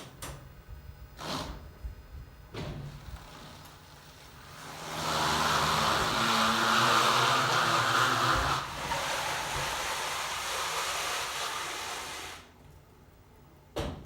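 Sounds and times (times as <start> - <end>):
faint electric drive whine: 0.0 - 8.8.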